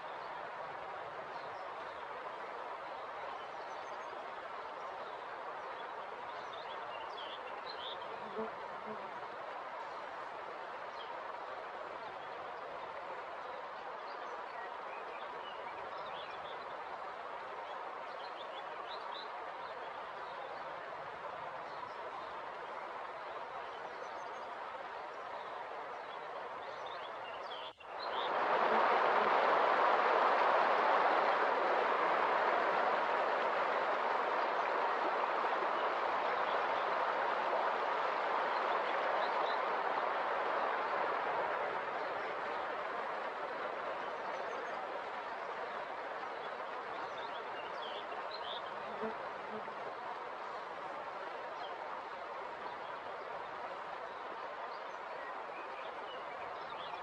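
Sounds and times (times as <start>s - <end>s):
river water flowing: 0.0s - 57.0s
river rushing: 28.0s - 56.1s.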